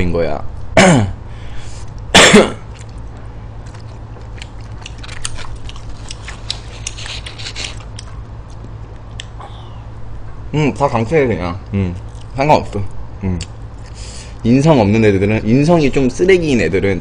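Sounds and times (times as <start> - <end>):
low steady hum: 0.0 - 17.0
chewing food: 2.6 - 9.4, 11.6 - 14.2.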